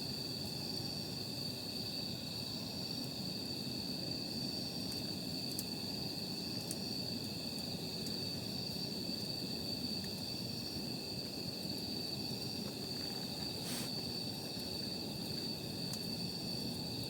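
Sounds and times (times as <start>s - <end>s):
campfire burning: 0.0s - 17.0s
crickets trilling: 0.0s - 17.0s
faint fire pops: 4.6s - 17.0s.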